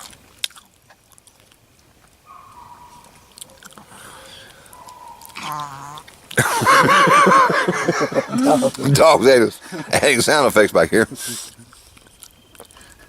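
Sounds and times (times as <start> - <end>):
dog whining: 2.3 - 6.0
voices: 2.4 - 11.8
dog groaning: 2.7 - 6.0
loud laughter: 6.4 - 10.3.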